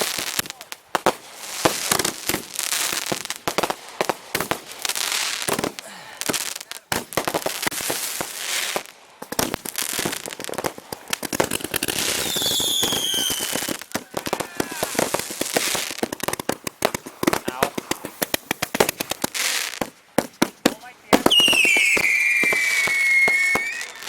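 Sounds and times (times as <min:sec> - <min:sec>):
fireworks bangs and crackling: 0:00.0 - 0:24.0
falling firework whistle: 0:12.0 - 0:15.2, 0:21.1 - 0:24.0.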